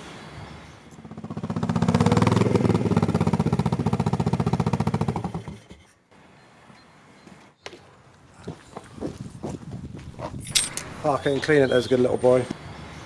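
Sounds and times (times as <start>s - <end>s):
motorcycle riding past: 0.0s - 5.8s.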